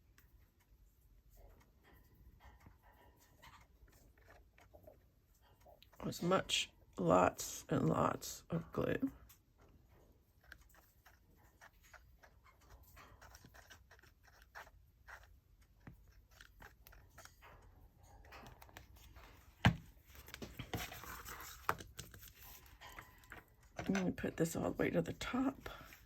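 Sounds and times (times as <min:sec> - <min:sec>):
scraping and rubbing: 0:10.0 - 0:24.3
paper rustling: 0:18.6 - 0:24.0.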